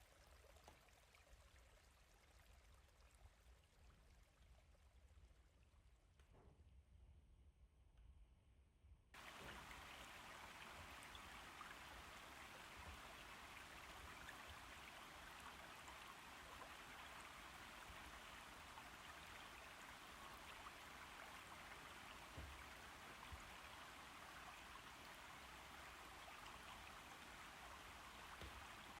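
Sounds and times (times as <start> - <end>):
faint rain falling: 9.2 - 29.0.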